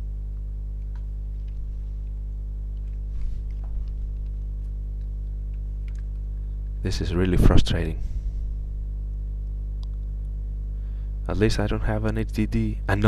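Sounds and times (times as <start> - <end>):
electrical mains hum: 0.0 - 13.0
faint clicks: 0.3 - 6.8.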